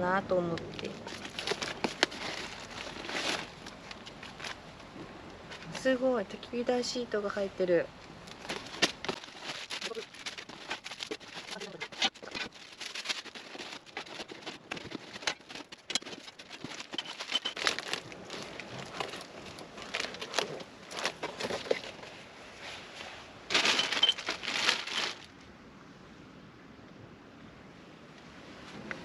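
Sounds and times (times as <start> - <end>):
plastic and paper crinkling: 0.5 - 4.9, 8.2 - 22.2, 23.5 - 25.3.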